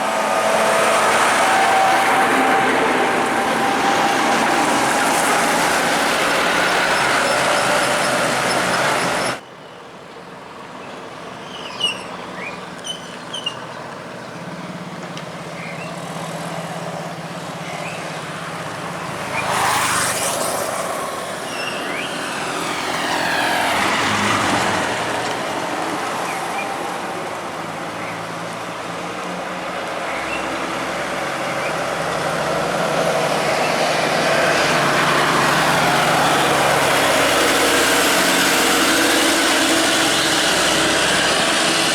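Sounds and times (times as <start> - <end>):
rising sweep: 0.0 - 9.3
truck diesel engine driving by: 0.0 - 41.9.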